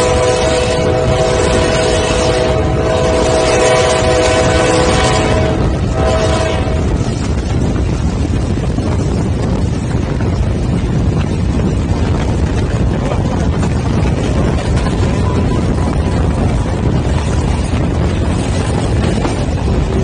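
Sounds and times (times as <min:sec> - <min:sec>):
train horn chord: 0:00.0 - 0:07.0
train wheels rumbling on rail: 0:00.0 - 0:20.0
wind on microphone: 0:00.0 - 0:20.0.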